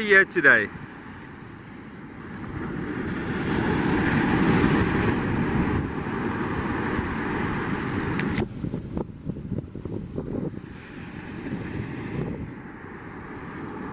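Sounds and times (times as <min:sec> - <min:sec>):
surf on a beach: 0:00.0 - 0:13.9
wind: 0:00.0 - 0:13.9.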